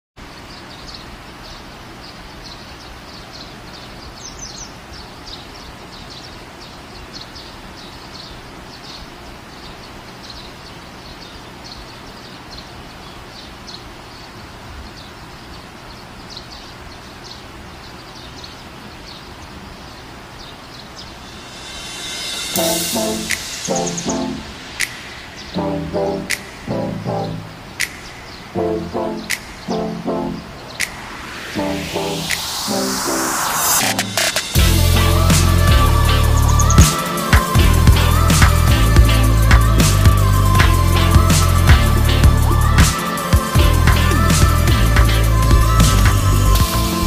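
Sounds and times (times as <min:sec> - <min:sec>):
bird chirping: 0:00.5 - 0:34.6, 0:36.2 - 0:37.2.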